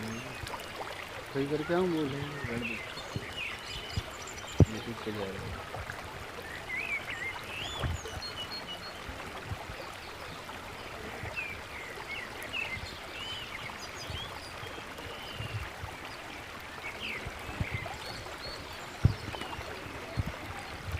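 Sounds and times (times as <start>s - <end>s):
running water rushing: 0.0s - 20.9s
small birds chirping: 0.0s - 20.9s
soft low thumps: 2.4s - 6.0s, 19.0s - 20.9s.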